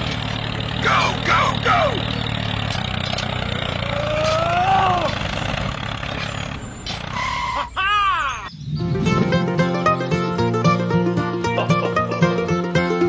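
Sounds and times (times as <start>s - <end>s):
rising and falling call: 6.4s - 10.0s
low motor drone: 8.5s - 13.0s.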